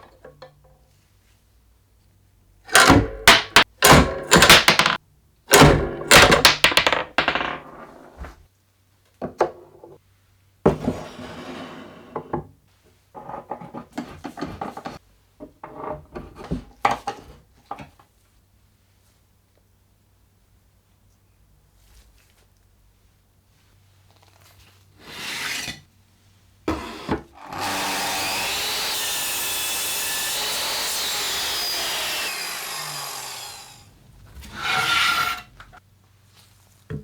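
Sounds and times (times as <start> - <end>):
parts knocking and clattering: 2.7 - 8.4
rasping scraping: 33.5 - 35.8.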